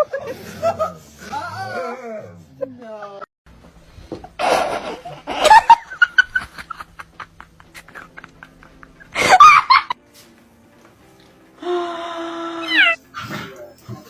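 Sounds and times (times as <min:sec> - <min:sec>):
person laughing in bursts: 0:04.3 - 0:10.0.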